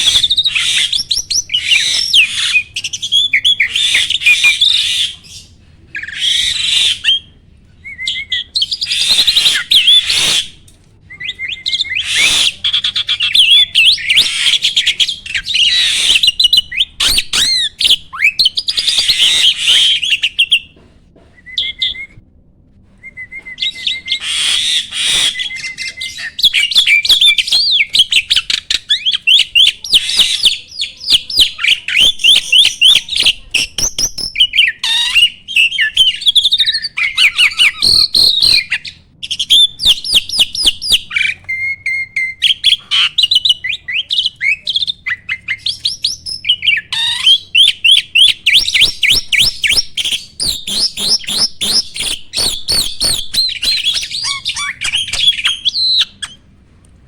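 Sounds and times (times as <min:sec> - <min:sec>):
starling chattering song: 0:00.0 - 0:07.4, 0:11.2 - 0:20.7, 0:23.6 - 0:56.5.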